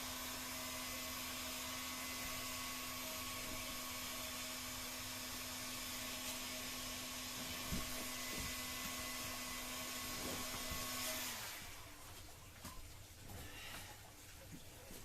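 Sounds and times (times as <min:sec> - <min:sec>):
heat gun whirring hiss: 0:00.0 - 0:11.8.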